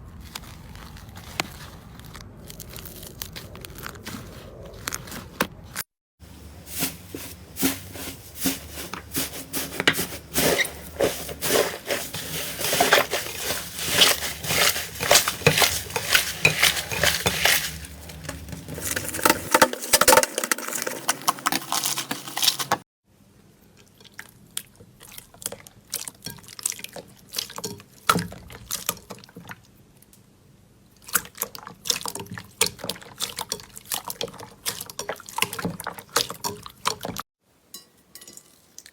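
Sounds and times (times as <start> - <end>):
slime squelching: 0.0 - 5.8, 6.4 - 22.8.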